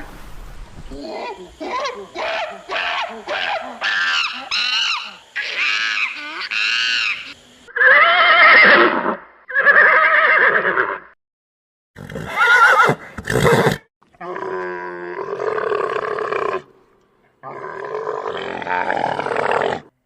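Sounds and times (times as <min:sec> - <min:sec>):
horse neighing: 0:07.0 - 0:11.1, 0:12.0 - 0:13.8.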